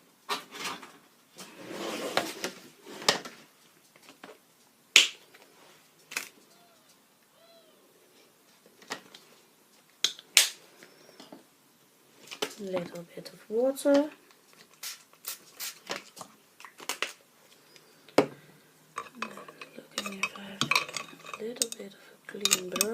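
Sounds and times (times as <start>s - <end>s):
faint squeaky tones: 6.4s - 7.9s.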